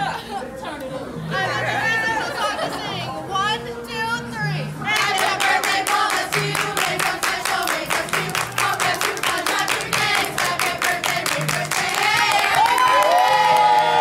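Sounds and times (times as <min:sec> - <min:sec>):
people singing: 0:00.0 - 0:03.1, 0:04.8 - 0:12.7
music: 0:00.0 - 0:14.0
rapid hand clapping: 0:05.0 - 0:13.7.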